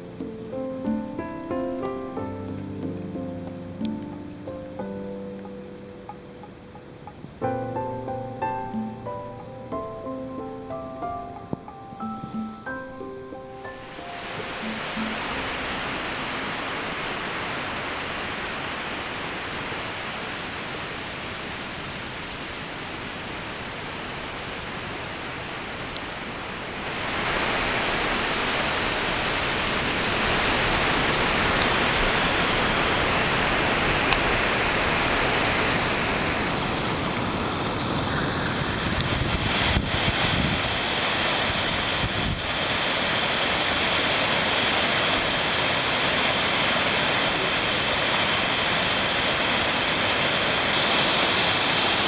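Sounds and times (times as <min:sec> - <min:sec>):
underwater rushing water: 0:00.0 - 0:52.0
small waterfall splashing: 0:13.8 - 0:52.0.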